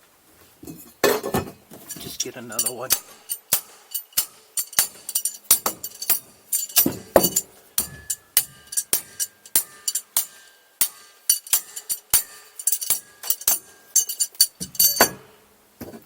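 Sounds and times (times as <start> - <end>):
tools hammering on metal engine: 1.0 - 15.5.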